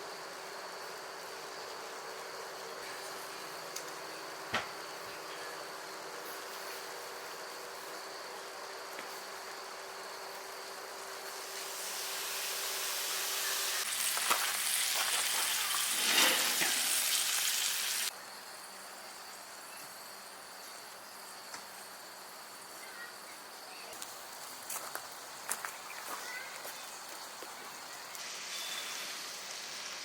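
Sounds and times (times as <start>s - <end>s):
high insect hum: 0.0s - 30.0s
food sizzling: 11.2s - 18.1s, 27.4s - 30.0s.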